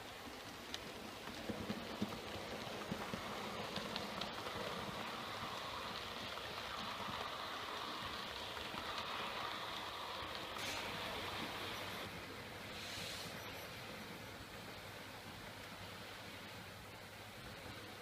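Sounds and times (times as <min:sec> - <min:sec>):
model train wheels whirring: 0:02.0 - 0:13.9.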